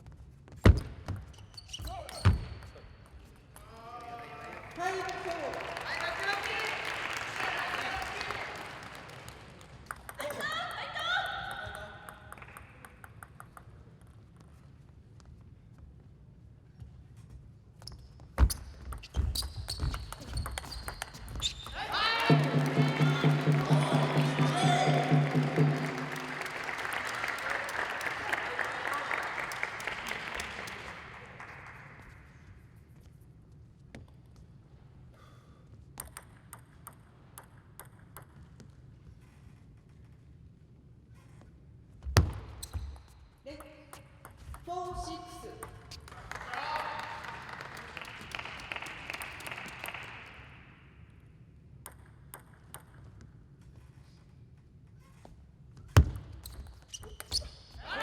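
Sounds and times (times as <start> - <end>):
audience applauding: 4.1 - 9.9, 21.8 - 32.4, 45.9 - 50.7
arena music: 21.8 - 28.9
table tennis ball taps: 36.0 - 38.7, 51.8 - 53.2.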